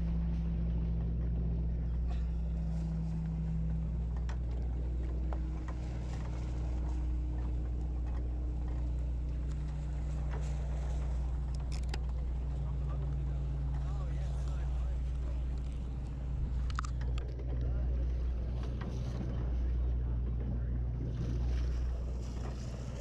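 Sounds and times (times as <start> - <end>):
boat engine humming: 0.0 - 23.0
faint clicks and knocks: 0.2 - 21.7.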